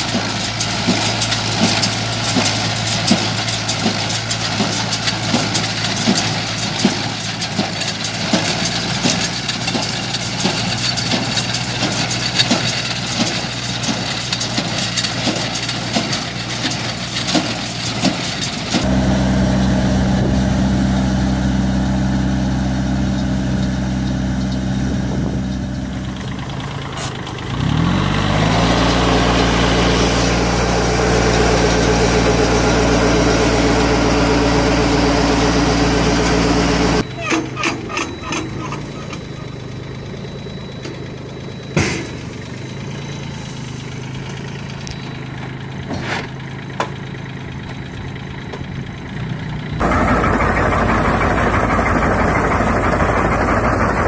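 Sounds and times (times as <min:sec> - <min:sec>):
hay baler knocking: 0:00.0 - 0:38.6, 0:49.8 - 0:54.0
tractor engine: 0:00.0 - 0:54.0.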